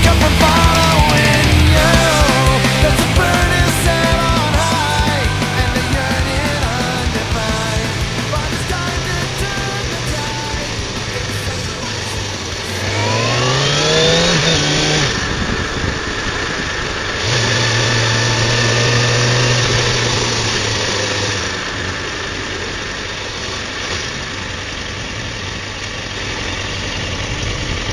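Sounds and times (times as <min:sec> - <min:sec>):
motorcycle engine accelerating: 0:00.0 - 0:27.9
wind noise: 0:13.6 - 0:18.6.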